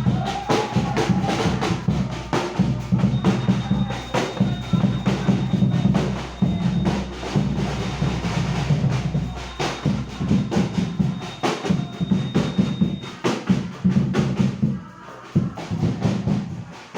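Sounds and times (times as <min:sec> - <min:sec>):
drum beat: 0:00.0 - 0:16.9
low bass line: 0:01.1 - 0:11.2.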